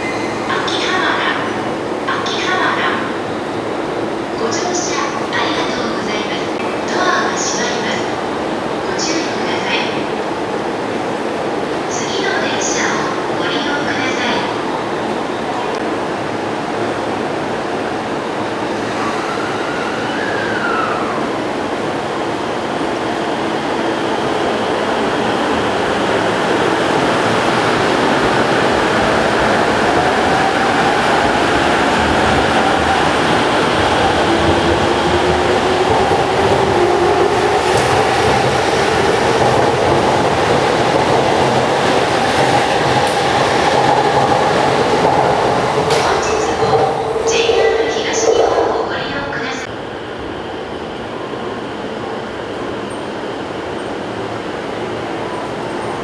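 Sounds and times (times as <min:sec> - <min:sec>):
train motor whine: 0:00.0 - 0:01.7, 0:18.7 - 0:21.4
electric train running on track: 0:00.0 - 0:56.0.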